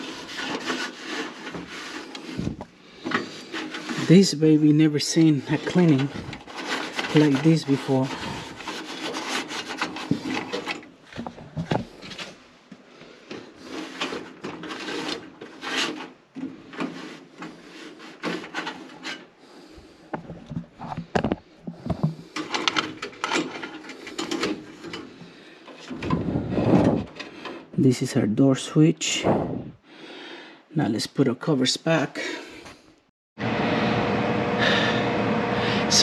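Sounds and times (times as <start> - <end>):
scrubbing and scraping: 0.0 - 11.2, 13.1 - 27.7.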